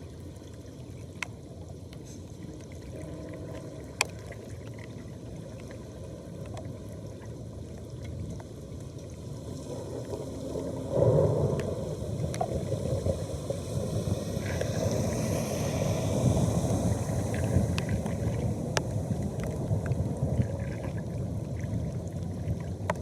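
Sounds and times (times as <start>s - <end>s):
floodwater rushing down a drain: 0.0s - 23.0s.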